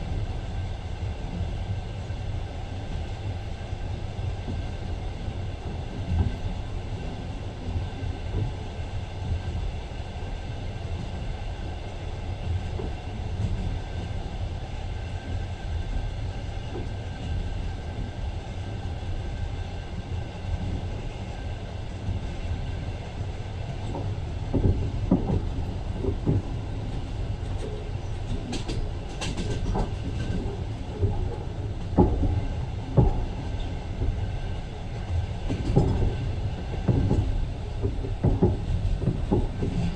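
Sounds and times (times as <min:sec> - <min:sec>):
train rumbling on rails: 0:00.0 - 0:39.9
train wheels clacking: 0:19.2 - 0:39.9.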